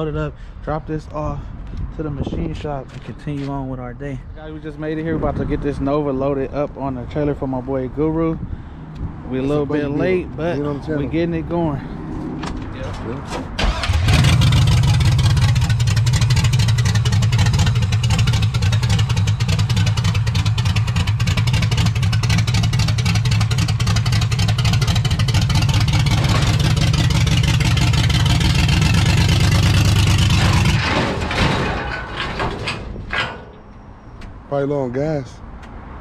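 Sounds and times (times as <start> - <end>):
car engine running loud: 13.6 - 31.6.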